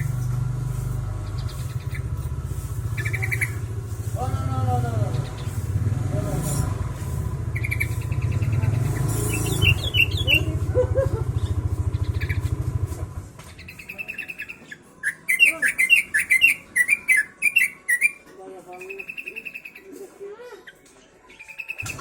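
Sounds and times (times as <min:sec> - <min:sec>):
bulbul chirping song: 0:00.0 - 0:05.8, 0:07.0 - 0:12.8, 0:13.5 - 0:20.0, 0:20.7 - 0:22.0
low steady engine: 0:00.0 - 0:13.8.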